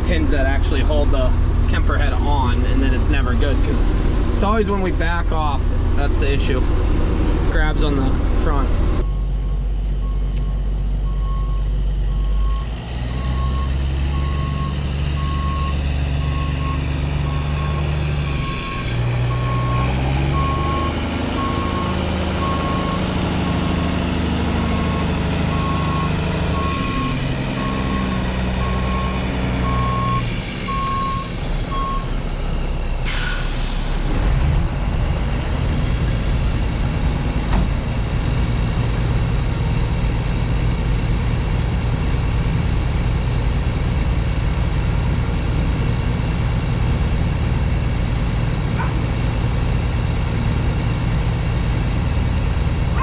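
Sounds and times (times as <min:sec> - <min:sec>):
heavy diesel engine running: 0:00.0 - 0:53.0
reversing alarm beeping: 0:09.0 - 0:32.2
air brake hiss: 0:33.0 - 0:34.1.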